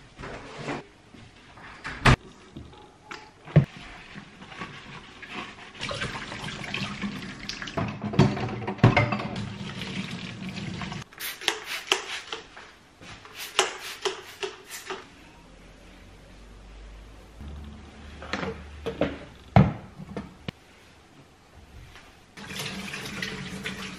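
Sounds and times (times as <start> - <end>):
tap water running into sink: 22.4 - 23.9.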